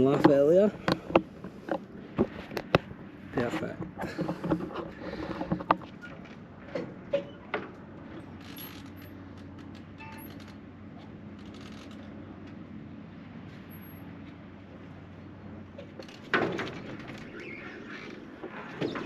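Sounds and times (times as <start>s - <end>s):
handling knocks and clicks: 3.7s - 10.2s.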